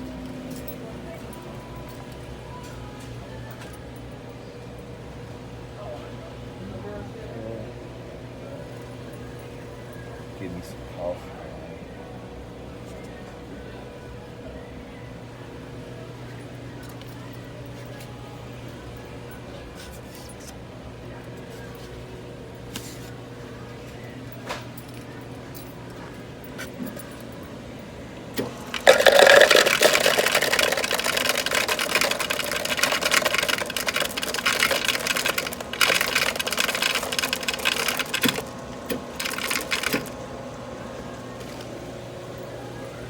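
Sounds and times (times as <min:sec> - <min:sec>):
steady store hum: 0:00.0 - 0:43.0
drink machine dispensing: 0:28.2 - 0:43.0.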